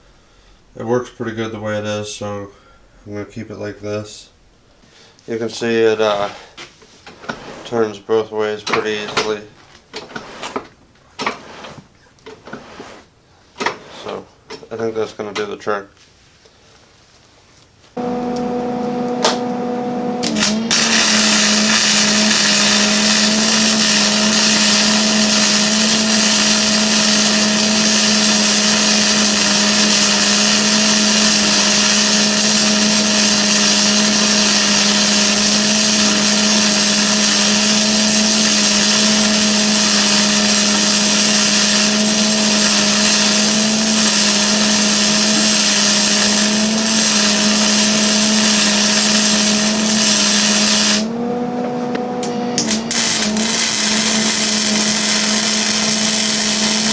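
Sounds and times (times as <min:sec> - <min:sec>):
angle grinder motor whine: 0:18.0 - 0:56.9
grinding hiss on metal: 0:20.4 - 0:51.1, 0:52.6 - 0:56.9.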